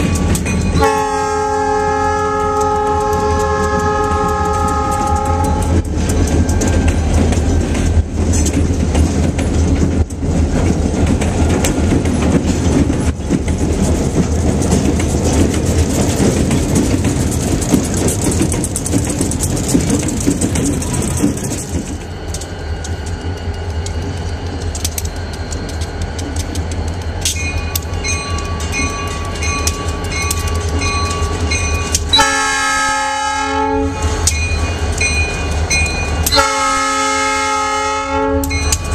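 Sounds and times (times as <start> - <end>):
diesel locomotive engine rumble: 0.0 - 38.9
train wheel clatter: 0.0 - 38.9
locomotive horn blast: 0.8 - 5.8, 32.1 - 34.2, 36.3 - 38.6
bell ringing rapidly: 27.4 - 32.0.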